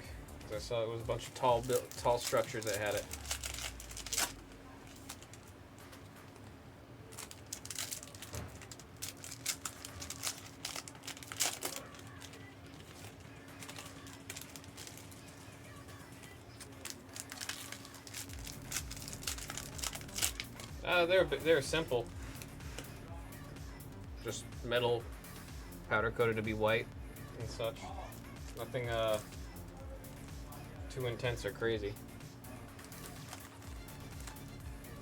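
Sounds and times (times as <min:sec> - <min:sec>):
card pack wrappers crinkling: 0:00.4 - 0:06.4, 0:07.1 - 0:20.8, 0:32.8 - 0:34.5.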